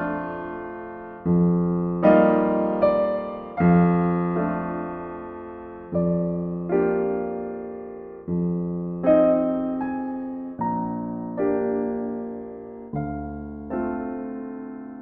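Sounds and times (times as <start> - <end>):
gentle solo piano: 0.0 - 15.0.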